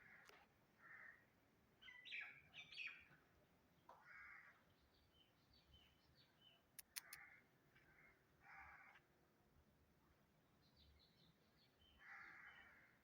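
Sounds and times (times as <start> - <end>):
sharp clicks: 6.8 - 7.2.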